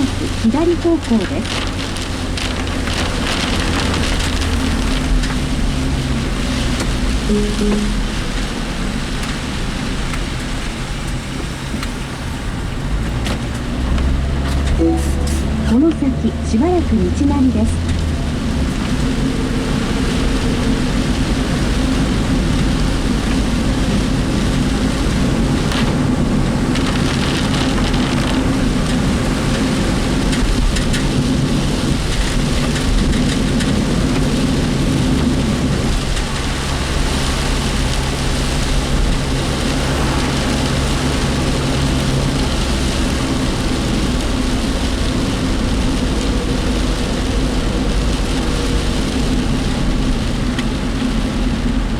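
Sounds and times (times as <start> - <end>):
heavy rain on vehicle: 0.0 - 51.9
low engine hum: 0.0 - 51.9.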